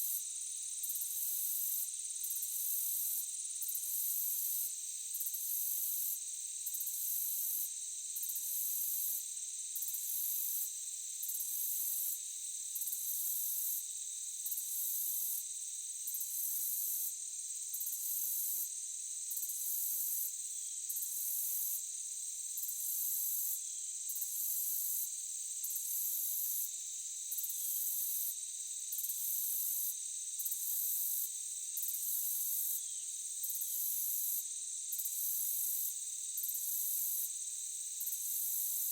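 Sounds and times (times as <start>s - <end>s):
high pulsing insect call: 19.2s - 38.9s
insects trilling: 22.6s - 38.9s.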